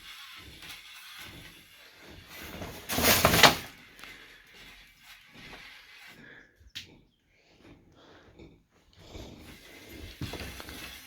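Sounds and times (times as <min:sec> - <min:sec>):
loud grating rattle: 0:00.0 - 0:06.5
handling and rustling: 0:02.0 - 0:05.5.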